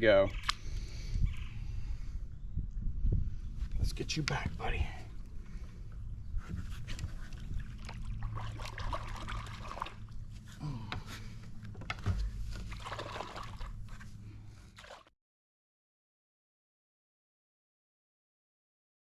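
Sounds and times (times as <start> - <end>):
low steady rumble: 0.0 - 14.8
water sloshing against boat: 4.0 - 15.1.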